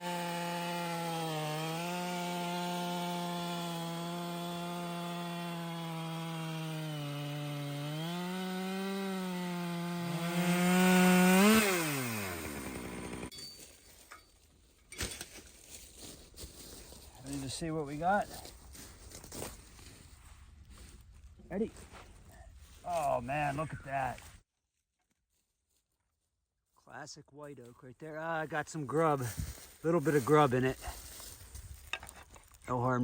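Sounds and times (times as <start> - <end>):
chainsaw cutting log: 0.0 - 13.3.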